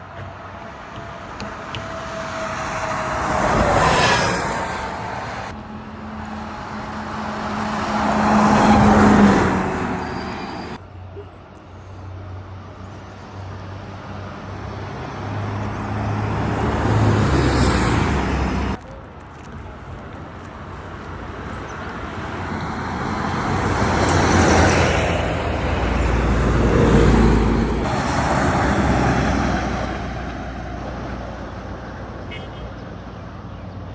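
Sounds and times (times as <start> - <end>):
buses driving past: 0.0 - 33.9
low engine hum: 15.3 - 32.1.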